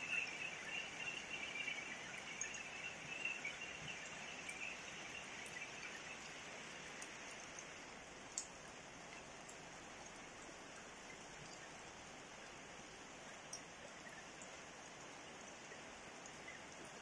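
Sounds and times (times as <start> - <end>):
insects chirping: 0.0 - 7.8.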